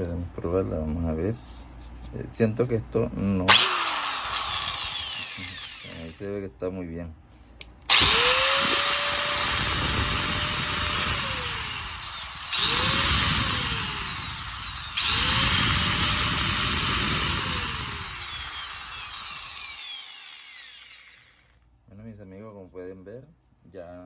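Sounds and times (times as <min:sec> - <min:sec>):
angle grinder whining: 0:03.5 - 0:06.3, 0:07.9 - 0:21.4.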